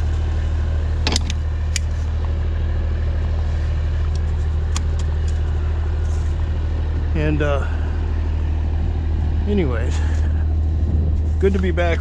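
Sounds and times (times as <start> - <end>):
truck engine droning: 0.0 - 12.0
sharp clicks or rattles: 1.0 - 1.9.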